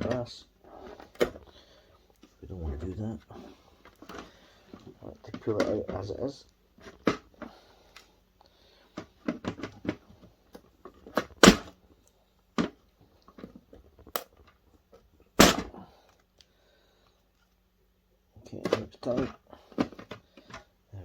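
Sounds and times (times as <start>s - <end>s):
hard plastic snapping: 9.0s - 11.8s, 13.4s - 14.5s, 15.4s - 15.8s.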